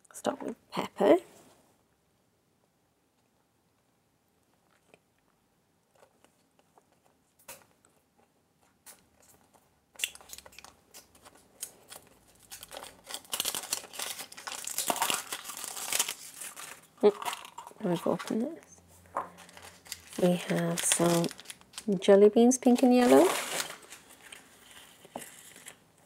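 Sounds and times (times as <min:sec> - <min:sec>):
wrapping crinkling and tearing: 0:08.7 - 0:18.6, 0:19.3 - 0:26.0.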